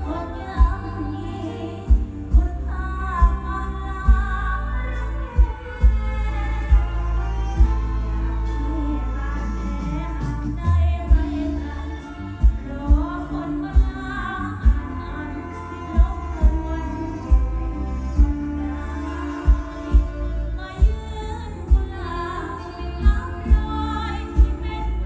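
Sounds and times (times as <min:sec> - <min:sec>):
woman singing: 0:00.0 - 0:25.0
heavy kick drum thumps: 0:01.9 - 0:04.6, 0:05.4 - 0:07.9, 0:12.4 - 0:15.1, 0:16.0 - 0:18.7, 0:19.5 - 0:22.1, 0:23.0 - 0:24.8.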